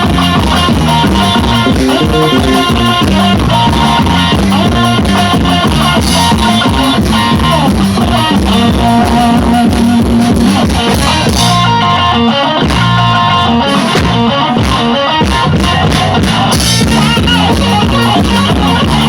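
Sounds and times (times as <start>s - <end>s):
loud guitar band music: 0.0s - 19.0s
drum hits: 12.6s - 19.0s.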